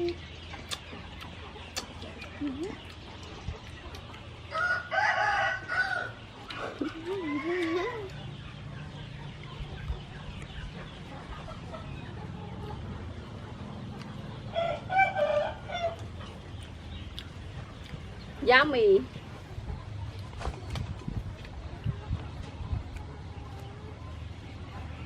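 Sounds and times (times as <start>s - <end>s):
rooster crowing: 4.5s - 6.2s.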